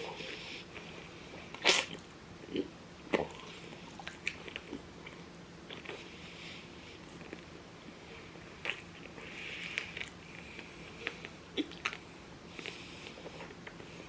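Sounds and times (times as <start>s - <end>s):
mouth biting and chewing: 1.5s - 6.1s, 8.6s - 12.0s.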